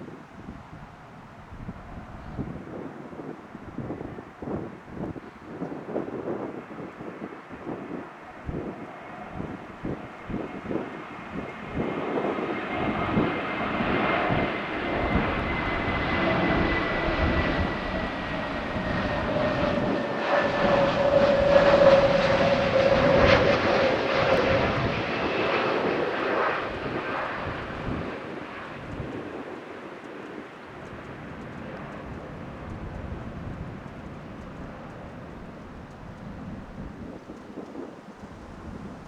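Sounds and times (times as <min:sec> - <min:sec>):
jet engines passing: 0:00.4 - 0:39.0
jet engine whine falling in pitch: 0:00.8 - 0:38.8.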